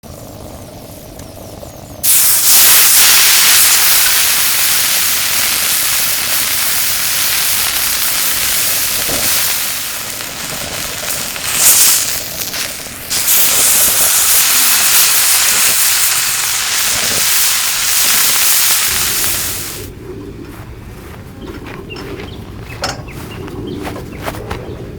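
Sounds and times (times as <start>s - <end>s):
meat sizzling on grill: 0.2s - 19.9s.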